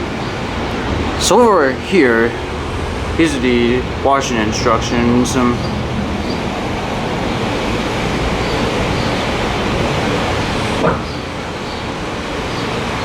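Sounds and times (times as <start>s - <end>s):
steady background rumble: 0.0s - 13.0s.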